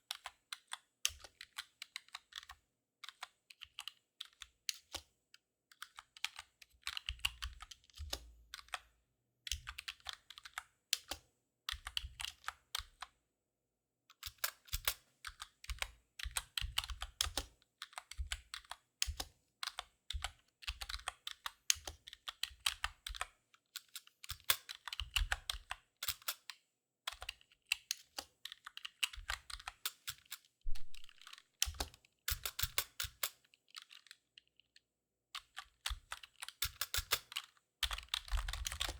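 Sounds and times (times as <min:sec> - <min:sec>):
keyboard typing clicks: 0:30.7 - 0:31.4.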